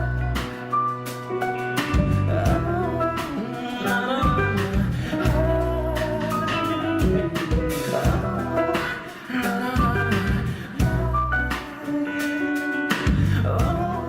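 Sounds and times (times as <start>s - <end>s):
live rock band playing: 0.0s - 14.0s
drum hits: 6.2s - 11.1s.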